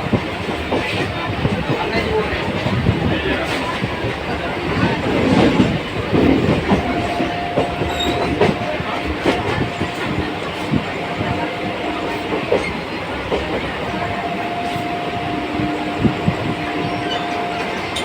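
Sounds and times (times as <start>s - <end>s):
train wheels clicking over rail joints: 0.0s - 14.1s
train rumble: 0.0s - 18.0s.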